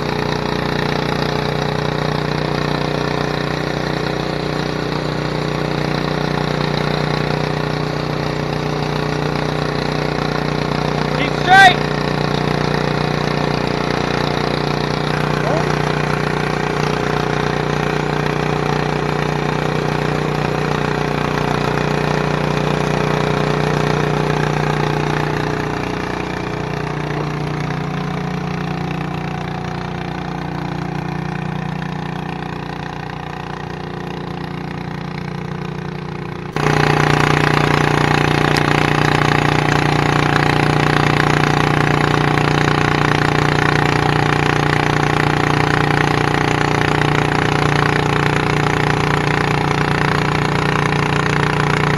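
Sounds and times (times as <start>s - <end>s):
garden tractor engine running: 0.0s - 51.9s
louder engine running: 0.0s - 51.9s.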